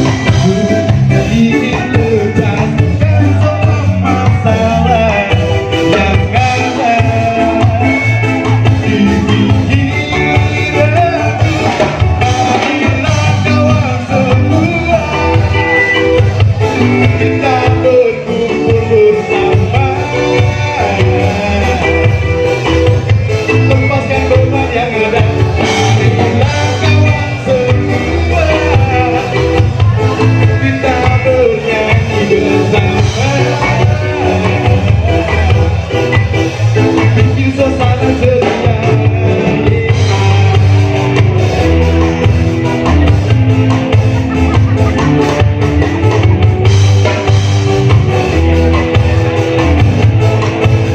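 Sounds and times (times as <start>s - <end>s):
lead vocal singing: 0.0s - 42.0s
bass and drums: 0.0s - 50.9s
rock band playing: 0.0s - 50.9s.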